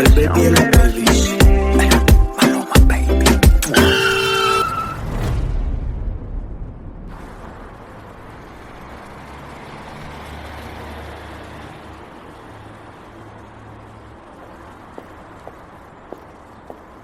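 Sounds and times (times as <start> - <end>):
wash of noise: 4.0 - 17.0.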